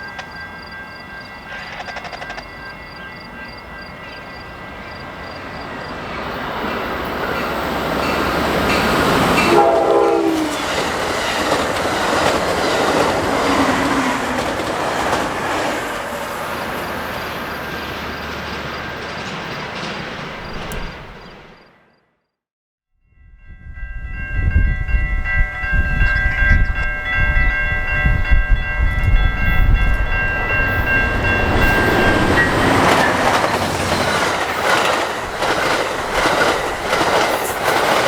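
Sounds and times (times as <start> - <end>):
train rumbling and rattling: 0.0 - 21.8, 23.4 - 38.0
train horn blast: 9.2 - 10.9.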